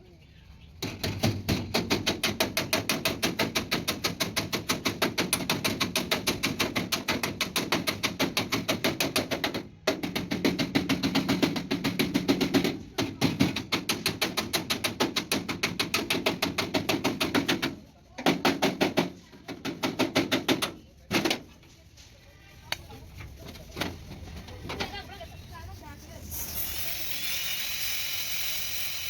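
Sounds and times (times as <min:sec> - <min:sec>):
hammering on sheet metal: 0:00.8 - 0:21.4.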